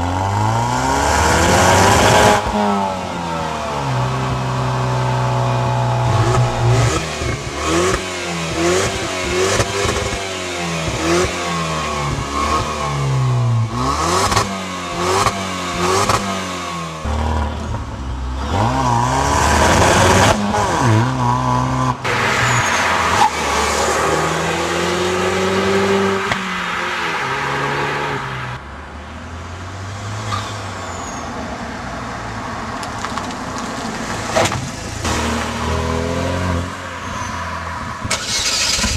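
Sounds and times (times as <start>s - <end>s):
car engine revving: 0.0s - 28.6s, 34.1s - 38.9s.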